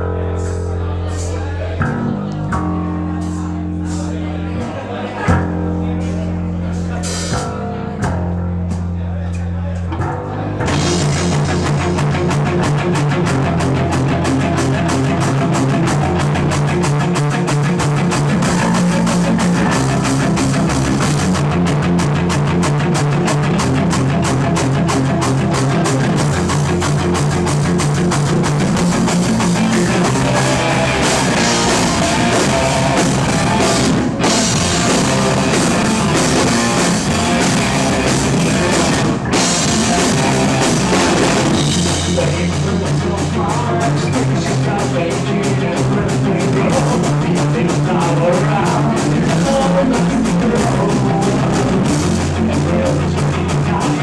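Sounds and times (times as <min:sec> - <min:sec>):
bass guitar: 0:00.0 - 0:54.0
distorted guitars: 0:00.0 - 0:54.0
drum kit: 0:00.0 - 0:54.0.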